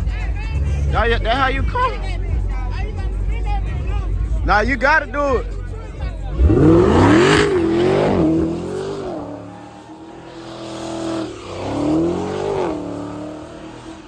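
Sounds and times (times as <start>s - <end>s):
car engine revving hard: 6.3s - 14.0s.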